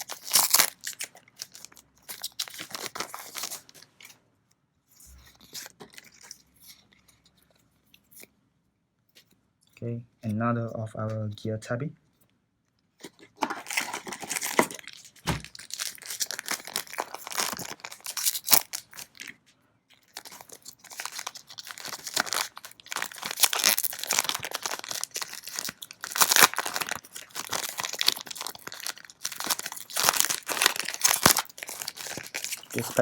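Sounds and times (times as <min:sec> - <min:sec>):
foil pack crinkling and tearing: 0:00.0 - 0:04.2, 0:13.0 - 0:19.4, 0:20.0 - 0:33.0.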